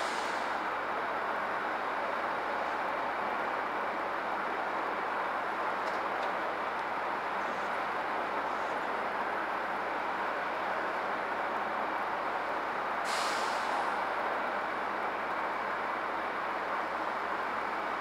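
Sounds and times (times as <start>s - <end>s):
heavy truck running: 0.0s - 18.0s.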